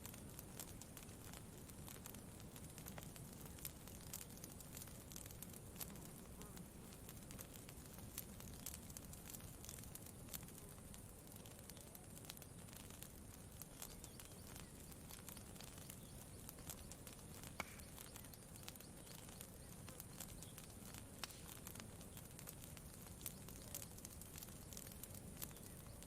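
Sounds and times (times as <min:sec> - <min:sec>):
campfire crackling and popping: 0:00.0 - 0:26.0.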